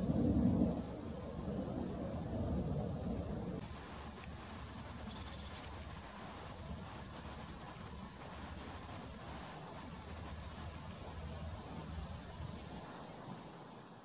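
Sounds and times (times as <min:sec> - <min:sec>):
songbirds calling: 0:02.2 - 0:02.8, 0:03.6 - 0:14.0.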